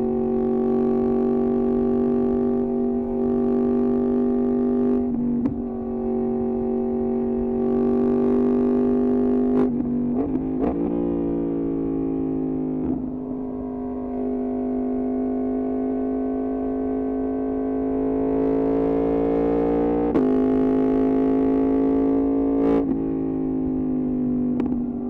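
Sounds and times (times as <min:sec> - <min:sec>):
motorcycle engine droning: 0:00.0 - 0:25.0.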